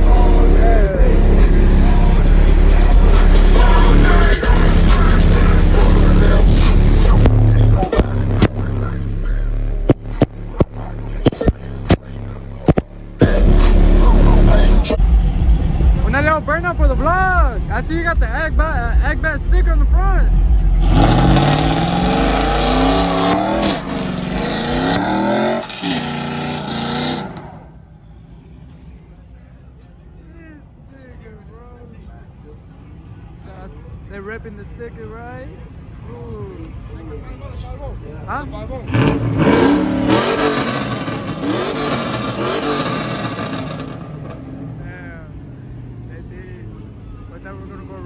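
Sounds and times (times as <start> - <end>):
truck engine revving hard: 0.0 - 28.9, 38.6 - 46.1
tyres squealing: 19.1 - 28.7.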